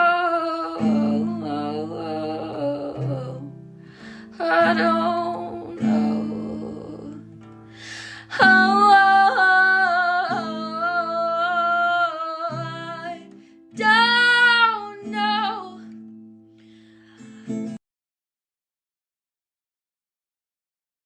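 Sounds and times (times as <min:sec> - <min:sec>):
woman singing wordless notes: 0:00.0 - 0:03.6, 0:04.2 - 0:07.3, 0:08.1 - 0:15.9
guitar accompaniment: 0:00.0 - 0:17.8.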